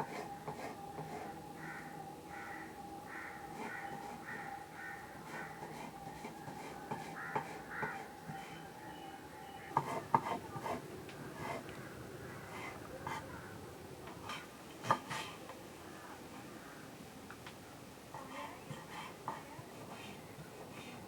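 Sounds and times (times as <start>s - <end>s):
crows cawing: 1.6s - 5.7s, 7.1s - 8.1s, 11.7s - 13.6s, 16.0s - 16.9s.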